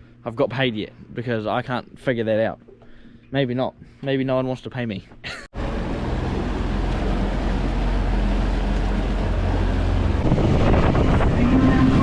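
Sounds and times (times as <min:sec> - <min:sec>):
outboard motor driving a boat: 0:05.6 - 0:11.2
wind on microphone: 0:09.6 - 0:12.0.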